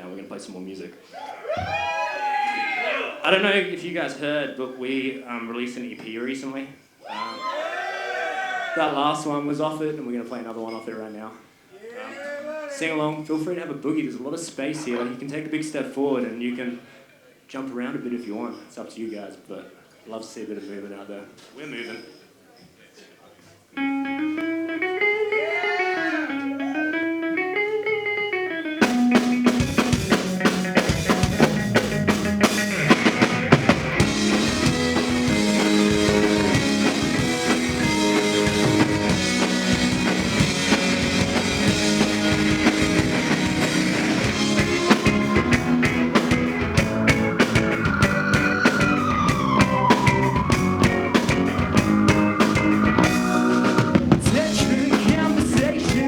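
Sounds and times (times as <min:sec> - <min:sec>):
guitar with bending notes: 0:23.8 - 0:56.0
rock band playing live: 0:23.8 - 0:56.0.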